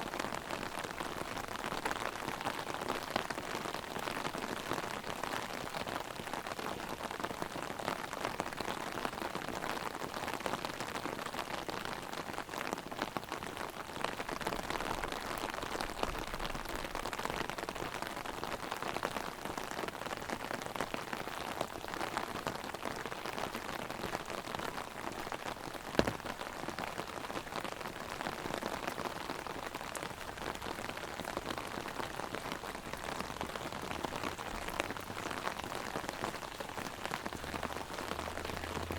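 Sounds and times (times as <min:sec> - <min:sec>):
rain pattering on umbrella: 0:00.0 - 0:38.9
sharp tap: 0:26.0 - 0:26.2.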